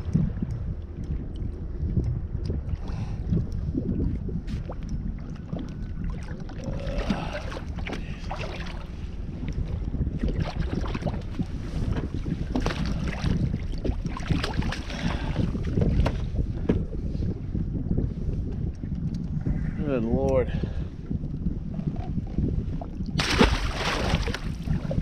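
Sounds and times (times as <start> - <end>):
wind buffeting microphone: 0.0 - 25.0
splashy water: 23.2 - 24.7.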